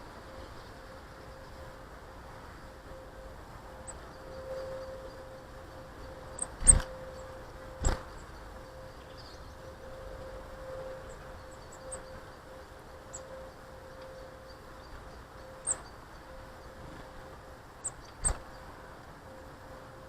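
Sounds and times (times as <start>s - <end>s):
faint steady hum: 0.0s - 20.0s
small birds chirping: 3.8s - 9.9s, 11.0s - 16.9s, 17.8s - 18.7s.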